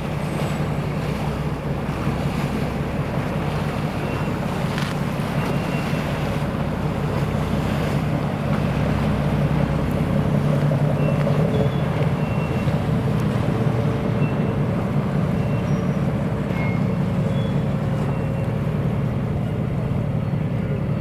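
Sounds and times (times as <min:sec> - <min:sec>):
boat engines rumbling: 0:00.0 - 0:21.0.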